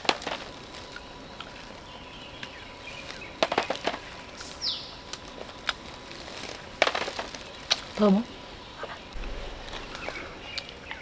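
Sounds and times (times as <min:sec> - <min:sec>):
steady background hiss: 0:00.0 - 0:11.0
falling chirp: 0:09.0 - 0:11.0.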